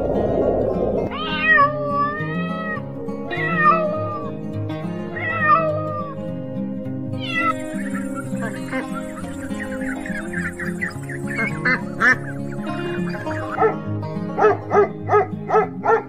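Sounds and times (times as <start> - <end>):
background music: 0.0 - 16.0
cat meowing: 1.1 - 4.3, 5.2 - 6.1, 7.2 - 7.8.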